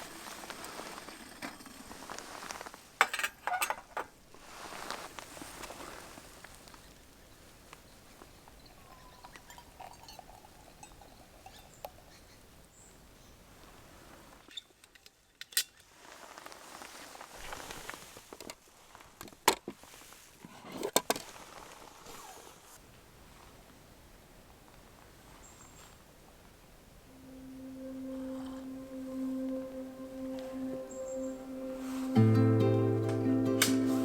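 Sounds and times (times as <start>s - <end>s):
faint rustling: 4.3s - 8.7s.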